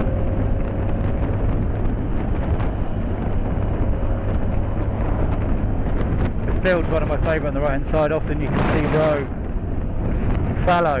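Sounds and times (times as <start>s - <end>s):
motorcycle engine running: 0.0s - 7.9s
wind noise on microphone: 0.0s - 11.0s.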